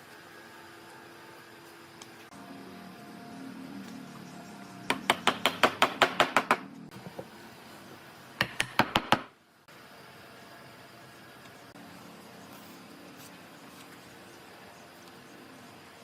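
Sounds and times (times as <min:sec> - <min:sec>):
rapid sharp knocks: 0:04.9 - 0:06.6, 0:08.4 - 0:09.3
faint steady hum: 0:06.6 - 0:16.0.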